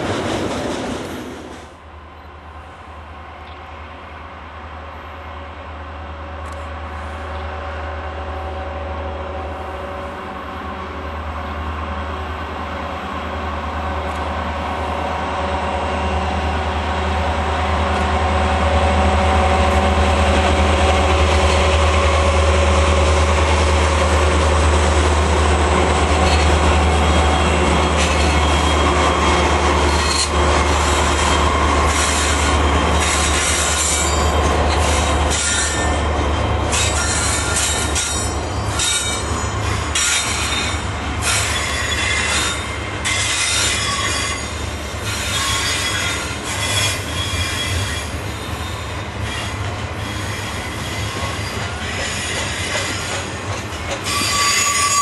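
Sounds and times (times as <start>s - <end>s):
diesel locomotive engines: 0.0s - 55.0s
freight cars rolling: 20.3s - 44.2s.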